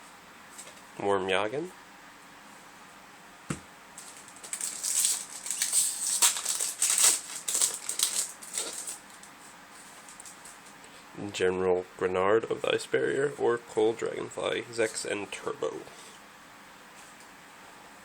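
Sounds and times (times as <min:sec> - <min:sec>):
foil wrapper crinkling: 0:04.0 - 0:10.8.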